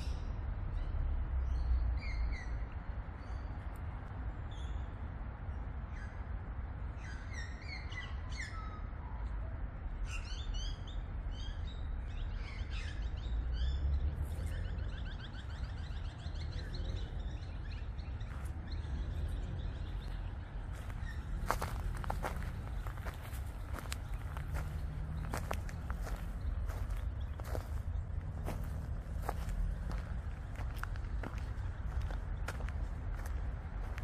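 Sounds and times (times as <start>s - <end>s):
birds chirping: 0.0s - 34.0s
steady low rumble: 12.0s - 34.0s.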